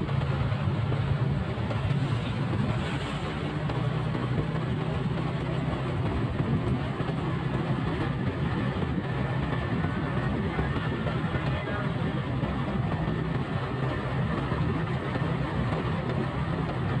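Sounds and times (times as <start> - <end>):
motorcycle engine running: 0.0 - 17.0
rushing wind noise: 0.0 - 17.0.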